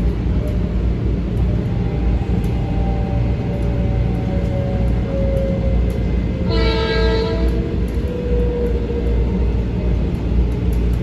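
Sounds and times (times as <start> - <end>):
electric train rumble: 0.0 - 11.0
train horn blast: 6.4 - 7.7.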